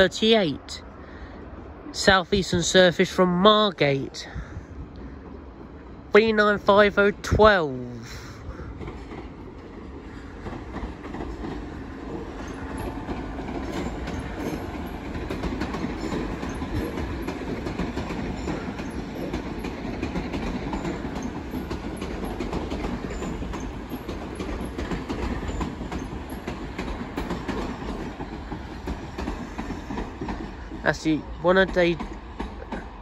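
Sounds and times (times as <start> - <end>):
train rumbling: 0.0 - 33.0
wheels clicking over track: 8.8 - 30.6.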